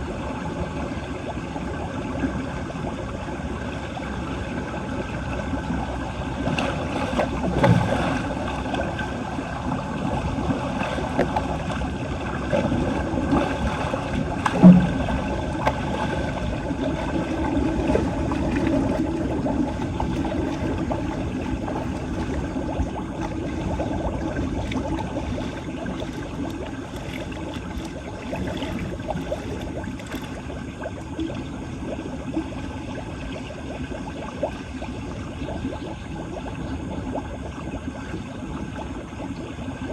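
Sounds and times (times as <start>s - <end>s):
water gurgling into drain: 0.0s - 39.9s
knocks and splashes: 5.2s - 31.2s.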